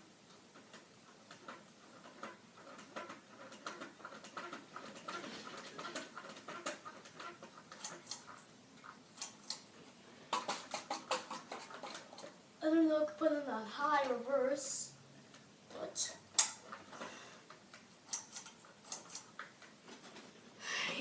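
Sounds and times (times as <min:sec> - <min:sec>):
fan blades ticking on balloon: 0:00.3 - 0:08.4.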